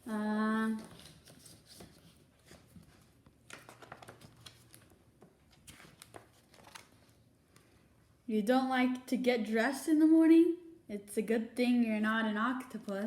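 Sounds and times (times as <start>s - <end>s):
picture book pages rustling: 0.7s - 7.3s.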